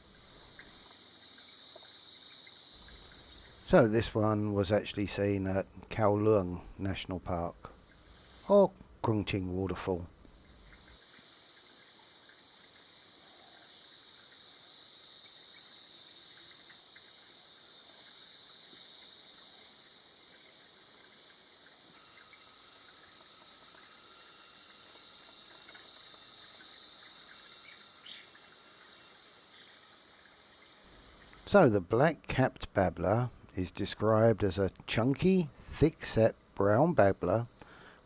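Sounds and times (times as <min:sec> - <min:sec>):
faint thin steady tone: 0:00.0 - 0:38.0
insects chorus: 0:00.0 - 0:38.0.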